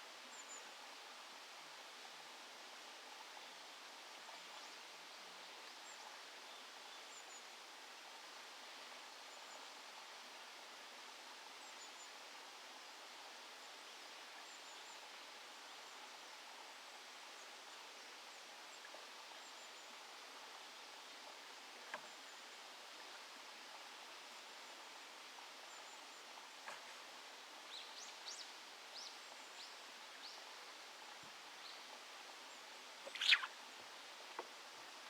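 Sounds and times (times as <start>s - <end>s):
hiss-like outdoor background: 0.0s - 35.0s
faint high chirps: 33.0s - 33.6s.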